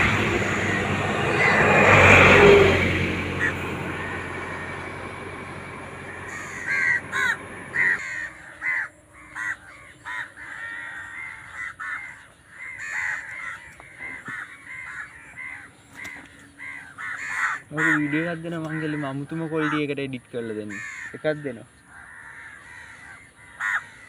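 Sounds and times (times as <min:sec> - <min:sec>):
low rumble: 0:00.0 - 0:08.5
birds calling harshly: 0:00.0 - 0:24.0.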